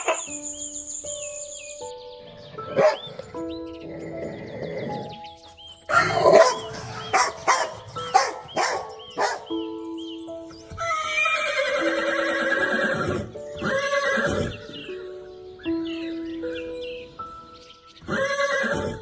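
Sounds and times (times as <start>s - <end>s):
dog barking: 0.0s - 0.3s, 2.6s - 3.4s, 5.9s - 9.6s
background music: 0.0s - 19.0s
horse whinnying: 10.9s - 14.5s, 18.1s - 19.0s.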